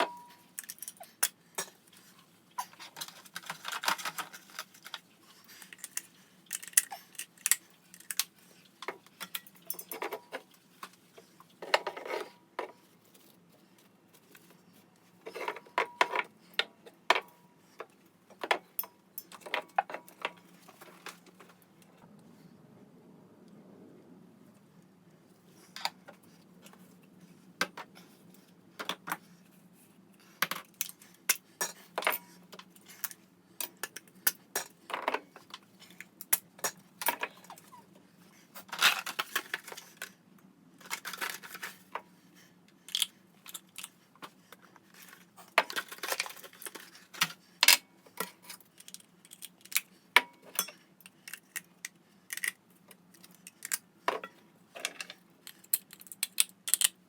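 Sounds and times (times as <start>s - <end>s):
small hard objects clattering: 2.6s - 5.0s.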